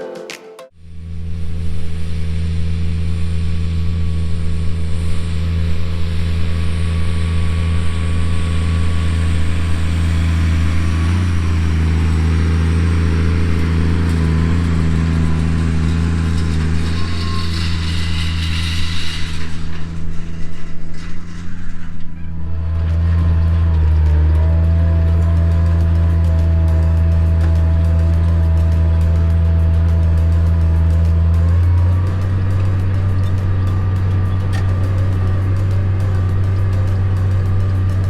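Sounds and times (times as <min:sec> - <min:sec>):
tractor diesel engine drone: 0:00.7 - 0:38.0.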